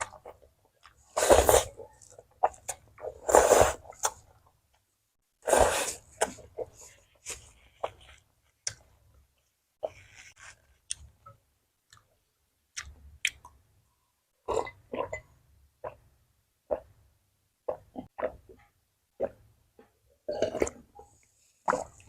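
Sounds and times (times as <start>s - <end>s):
person chewing food: 9.8s - 11.3s.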